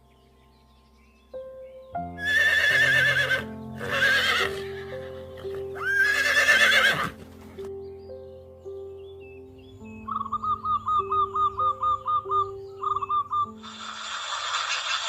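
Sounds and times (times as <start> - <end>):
background music: 0.0 - 14.4
horse whinnying: 2.2 - 7.2.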